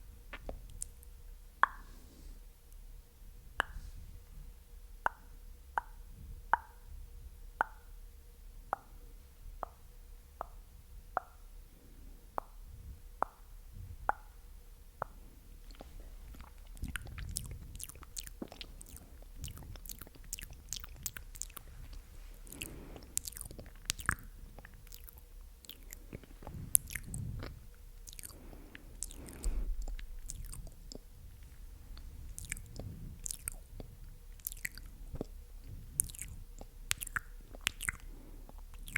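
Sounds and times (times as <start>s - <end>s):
wet lip and tongue clicking: 0.3s - 1.9s, 3.6s - 3.8s, 15.0s - 38.9s
soft mouth pops: 0.3s - 2.0s, 3.6s - 4.0s, 5.0s - 6.8s, 9.6s - 9.8s, 12.3s - 12.6s, 13.2s - 14.4s, 15.0s - 38.9s.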